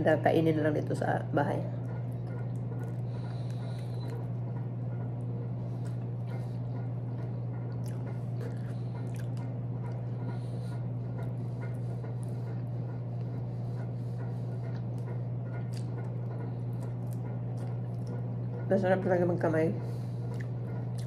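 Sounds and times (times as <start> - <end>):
steady low hum: 0.0 - 21.0
wet chewing: 2.0 - 18.6, 20.2 - 21.0
biting: 7.8 - 10.3.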